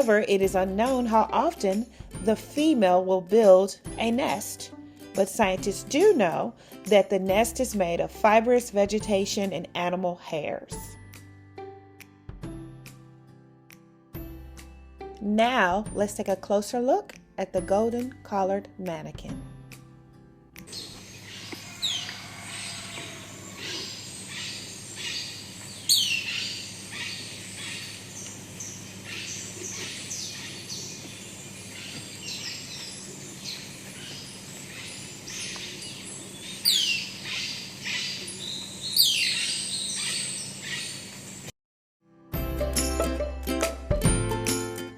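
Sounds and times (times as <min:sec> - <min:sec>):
bird downward-sweeping calls: 0:20.7 - 0:41.1.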